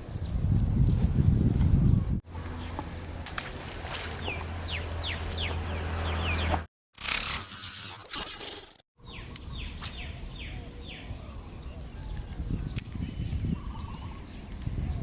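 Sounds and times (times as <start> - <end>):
birds chirping: 4.2 - 6.6, 8.2 - 15.0.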